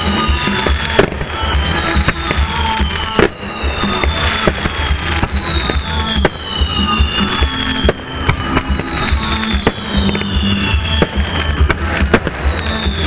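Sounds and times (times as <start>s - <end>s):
fireworks bangs and crackles: 0.0s - 13.0s
loud music: 0.0s - 13.0s
whistling fireworks: 0.0s - 13.0s.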